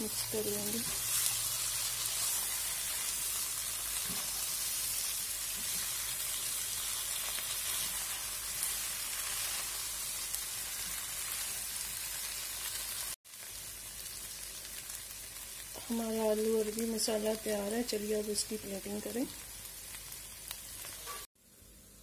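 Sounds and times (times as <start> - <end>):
potatoes sizzling in hot oil: 0.0 - 22.0
spatula stirring: 0.5 - 9.9.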